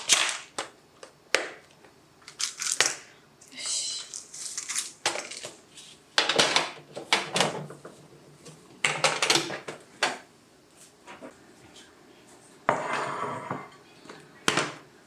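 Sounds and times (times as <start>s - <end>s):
household items rustling and clattering: 4.0s - 10.2s.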